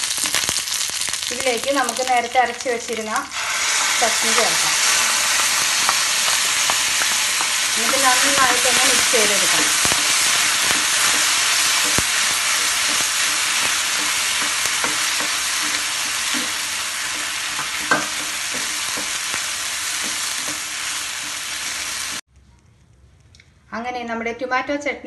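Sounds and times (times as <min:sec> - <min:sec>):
chutney sizzling in hot oil: 0:00.0 - 0:22.2
spatula scraping and tapping pan: 0:04.3 - 0:22.2.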